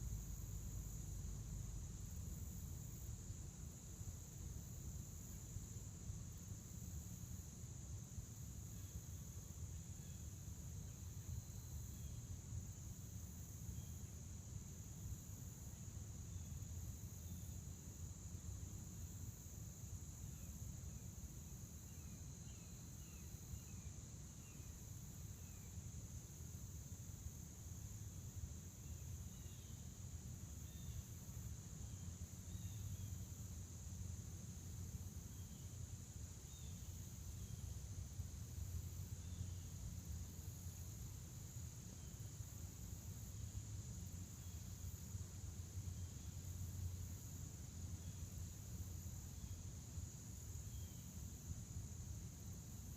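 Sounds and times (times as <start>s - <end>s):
crickets chirping: 0.0s - 52.9s.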